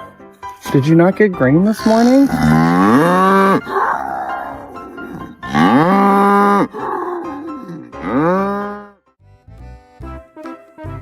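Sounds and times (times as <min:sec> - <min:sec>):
quiet music: 0:00.0 - 0:11.0
cow mooing: 0:01.8 - 0:08.9.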